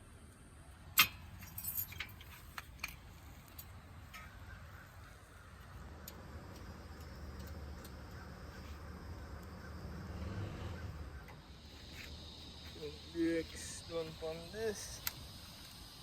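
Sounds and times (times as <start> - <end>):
steady low hum: 0.0 - 16.0
sharp metallic clack: 1.0 - 3.0
metal tools clinking: 1.0 - 4.3.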